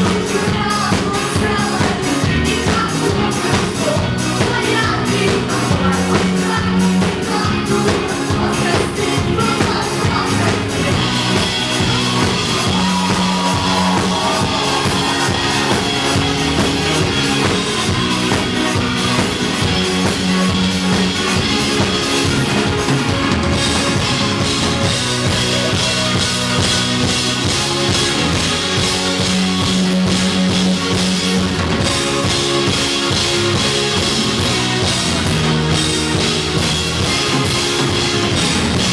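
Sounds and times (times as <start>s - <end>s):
rock band playing: 0.0s - 38.9s
steady drum beat: 0.0s - 38.9s.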